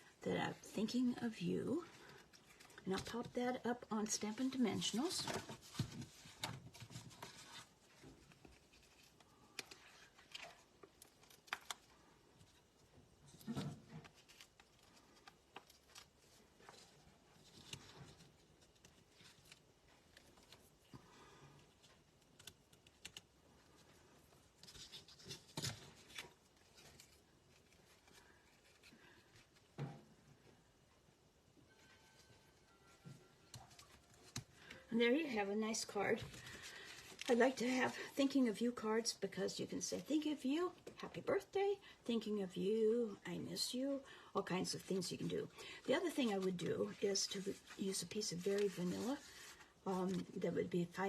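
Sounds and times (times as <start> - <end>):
paper handling clicks and rustles: 2.0 - 20.9, 21.7 - 29.8, 45.9 - 50.4.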